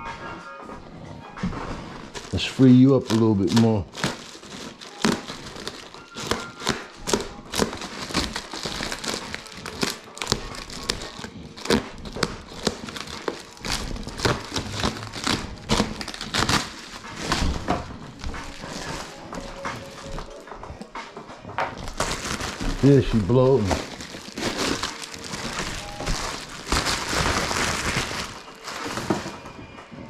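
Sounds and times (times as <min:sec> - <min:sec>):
packing material crinkling: 0:01.5 - 0:20.9, 0:21.6 - 0:29.6.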